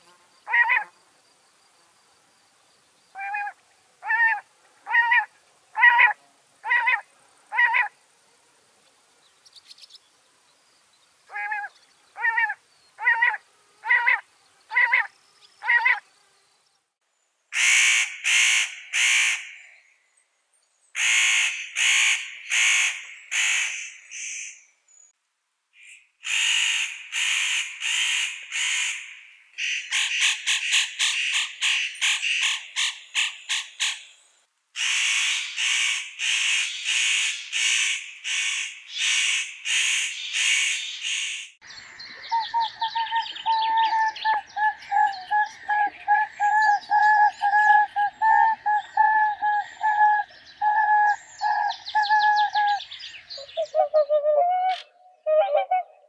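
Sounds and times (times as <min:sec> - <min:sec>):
harsh bird calls: 0:34.8 - 0:54.1
bird warbling song: 0:40.2 - 0:56.0.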